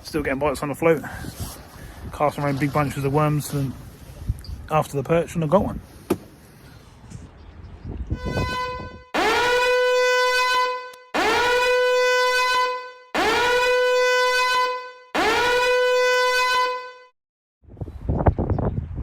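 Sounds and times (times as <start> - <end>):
buzzy horn blasts: 8.2 - 17.1.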